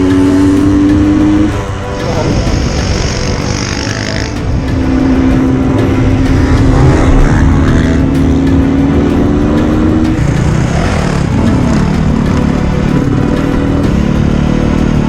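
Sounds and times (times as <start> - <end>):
dirt bike engine running: 0.0 - 15.0
heavy low rumble: 2.0 - 13.7.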